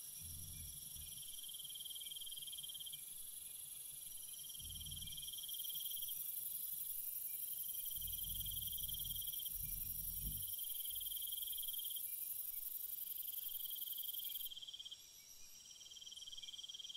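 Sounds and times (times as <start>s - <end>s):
pulsing insect trill: 0.0s - 16.9s
faint low rumble: 0.2s - 1.4s, 4.5s - 5.5s, 7.8s - 11.2s
insects shrill drone: 4.2s - 12.4s.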